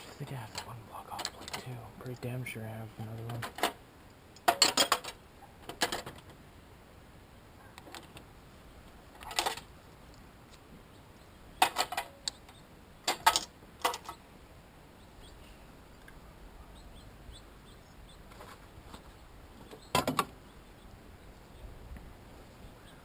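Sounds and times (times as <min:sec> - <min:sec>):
small metal parts clinking: 0:04.4 - 0:05.2, 0:13.1 - 0:14.2
faint bird chirps: 0:10.8 - 0:13.1, 0:14.9 - 0:18.3, 0:19.0 - 0:21.8, 0:22.4 - 0:23.0.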